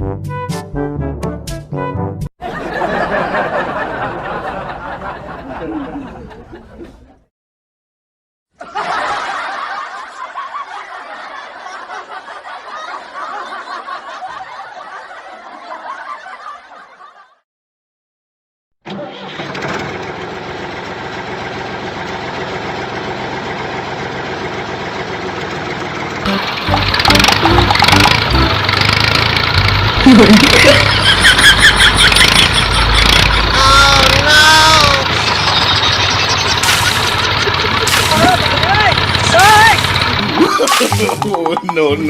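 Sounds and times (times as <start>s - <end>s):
small tractor engine running: 18.9s - 41.7s.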